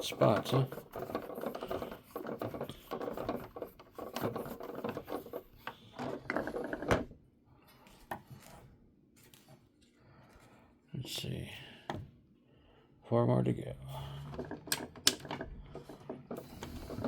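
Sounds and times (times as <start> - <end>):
plastic toy parts rubbing and clicking: 0.0 - 7.1, 14.4 - 17.0.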